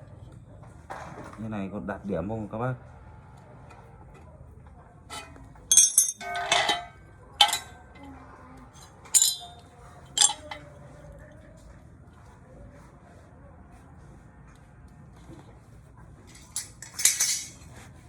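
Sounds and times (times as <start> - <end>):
aluminium pieces clinking together: 5.1 - 8.0, 8.8 - 10.7, 16.3 - 17.7.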